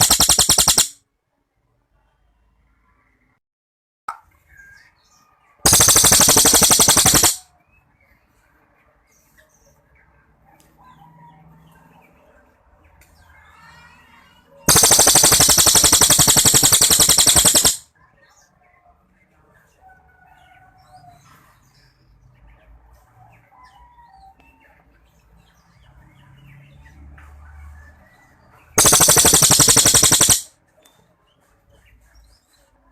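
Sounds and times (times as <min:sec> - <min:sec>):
songbird rapid trills: 0:00.0 - 0:01.0, 0:05.7 - 0:07.4, 0:14.7 - 0:17.8, 0:28.8 - 0:30.5.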